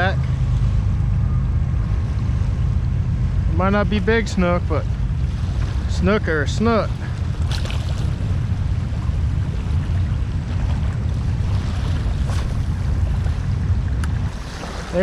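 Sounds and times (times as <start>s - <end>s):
wind buffeting microphone: 0.0s - 15.0s
rushing water: 3.4s - 15.0s.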